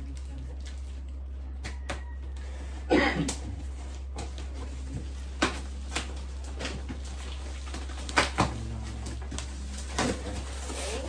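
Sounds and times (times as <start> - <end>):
steady low hum: 0.0 - 11.0
scraping rustle: 3.6 - 11.0
packaging clicks and knocks: 4.2 - 10.8.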